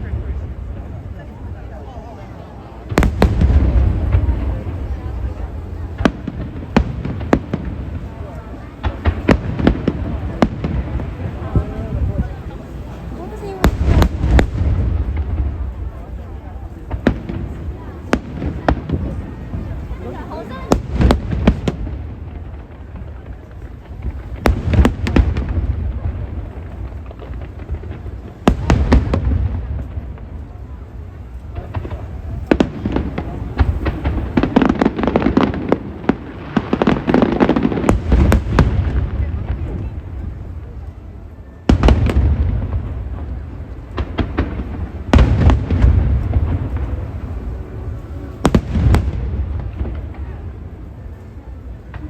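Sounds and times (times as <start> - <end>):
continuous low rumble: 0.0 - 52.0
fireworks bangs: 0.0 - 52.0.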